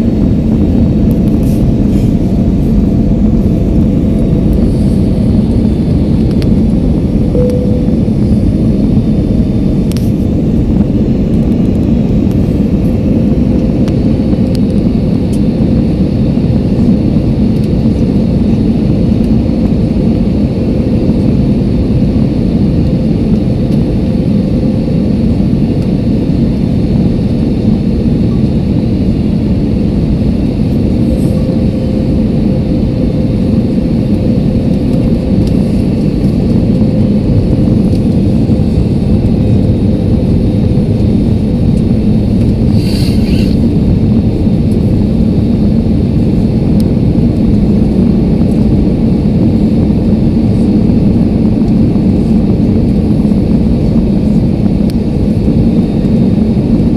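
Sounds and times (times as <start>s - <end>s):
airliner engine rumble: 0.0s - 56.9s.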